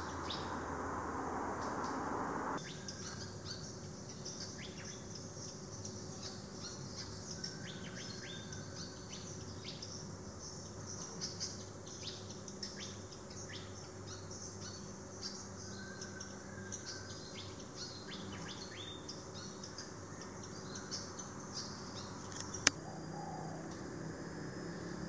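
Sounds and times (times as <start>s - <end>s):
birds chirping: 0.0s - 7.2s, 8.4s - 22.8s
sharp click: 22.2s - 22.8s.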